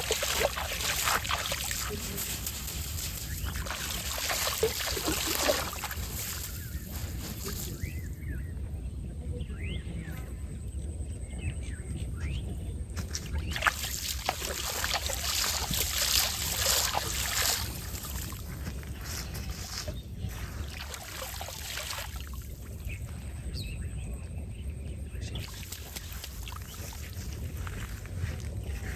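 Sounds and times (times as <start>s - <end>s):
river water splashing: 0.0s - 8.0s, 13.1s - 23.0s, 25.4s - 28.9s.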